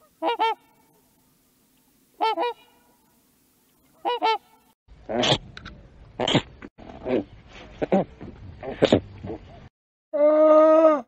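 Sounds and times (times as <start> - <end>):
swans honking: 0.0 - 1.2, 2.1 - 3.1, 3.8 - 4.7.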